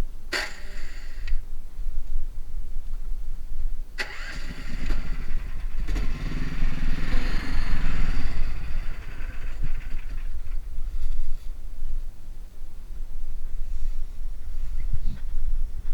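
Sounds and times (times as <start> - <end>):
all-terrain vehicle engine running: 4.0 - 12.1.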